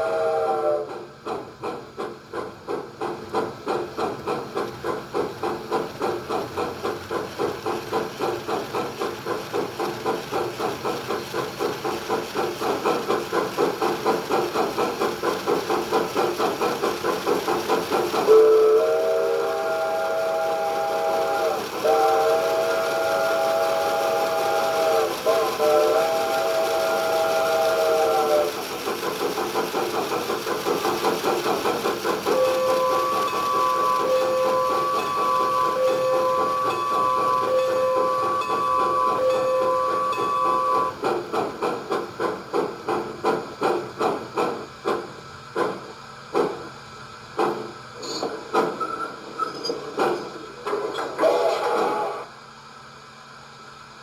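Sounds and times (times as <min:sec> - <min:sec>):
steam locomotive whistle: 0:00.0 - 0:01.1, 0:18.2 - 0:28.8, 0:32.2 - 0:41.0, 0:51.0 - 0:52.4
steam locomotive chuffing: 0:00.0 - 0:54.0.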